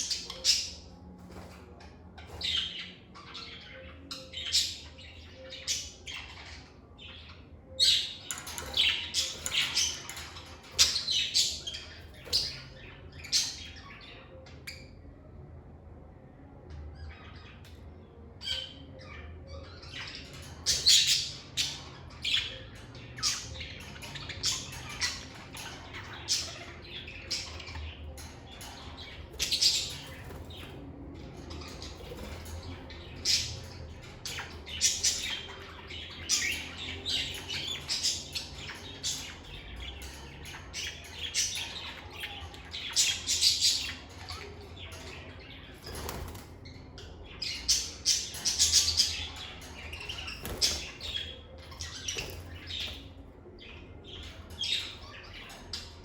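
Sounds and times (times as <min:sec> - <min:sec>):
lovebirds chirping and squawking: 0:00.0 - 0:56.0.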